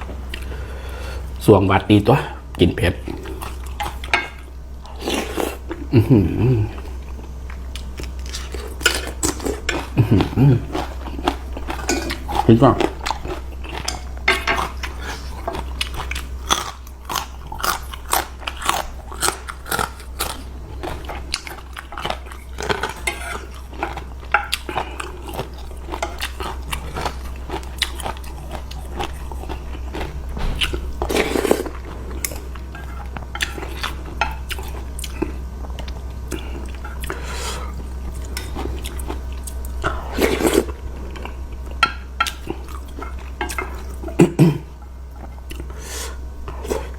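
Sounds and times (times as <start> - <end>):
steady low hum: 0.0 - 46.9
person chewing noodles: 0.2 - 1.4, 3.0 - 46.9.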